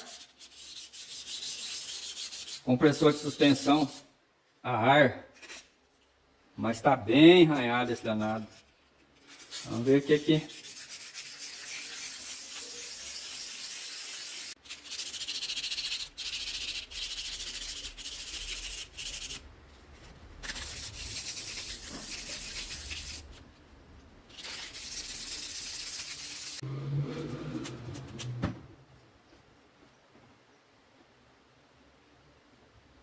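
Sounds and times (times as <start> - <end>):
sandpaper sanding metal: 0.0 - 4.0, 7.5 - 19.5, 20.4 - 23.4, 24.3 - 26.6.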